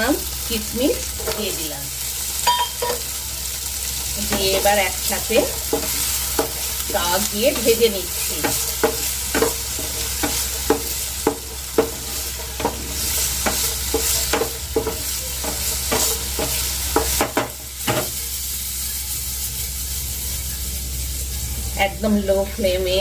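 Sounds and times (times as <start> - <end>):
nuts sizzling in a frying pan: 0.0 - 23.0.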